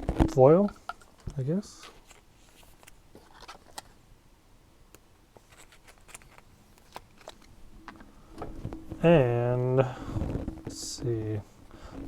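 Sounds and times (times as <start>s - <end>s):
trading cards flipped through: 1.3s - 4.0s, 5.4s - 8.1s.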